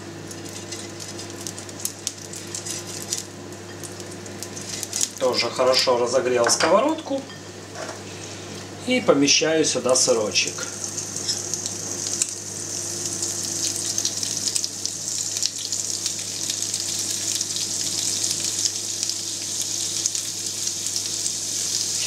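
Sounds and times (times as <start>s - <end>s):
cheese sizzling on grill pan: 0.2s - 5.5s, 9.9s - 22.0s.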